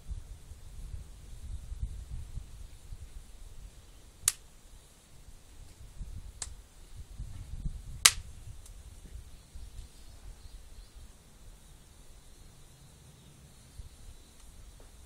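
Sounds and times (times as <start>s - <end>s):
firewood popping and cracking: 8.0s - 8.8s.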